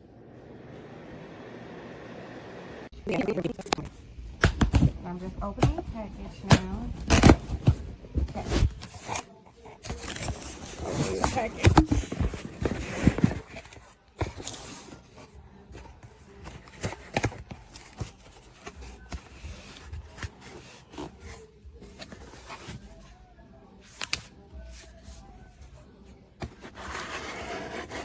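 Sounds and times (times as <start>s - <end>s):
packaging rustling and scraping: 5.7s - 22.9s.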